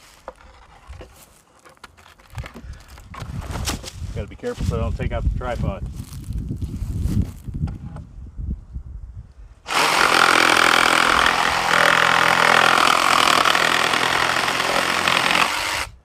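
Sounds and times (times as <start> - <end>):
reciprocating saw cutting log: 9.7 - 16.0.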